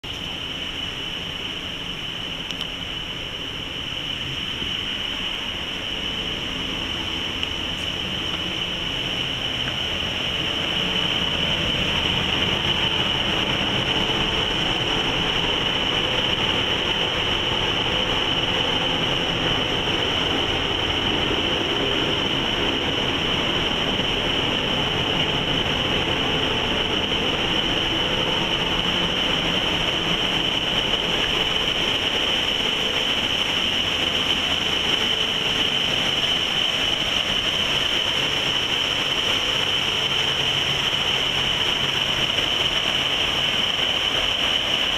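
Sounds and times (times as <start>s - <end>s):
boat engine rumble: 0.0s - 44.9s
high engine whine: 0.0s - 44.9s.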